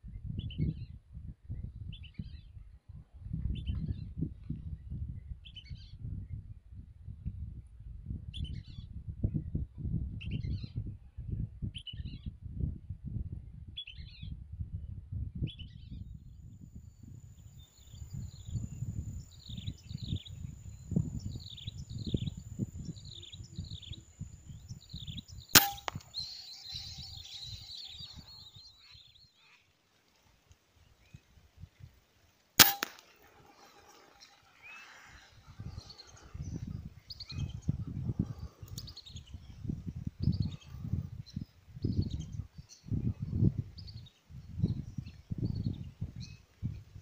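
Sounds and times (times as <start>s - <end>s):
gunshot: 25.6s - 26.2s, 32.6s - 34.0s.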